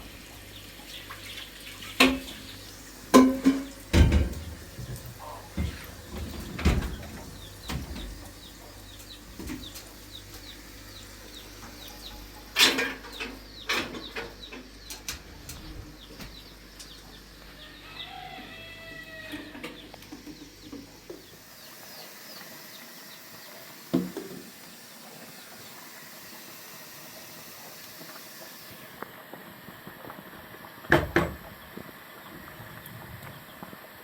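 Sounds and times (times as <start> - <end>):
chicken clucking: 4.9 - 5.9.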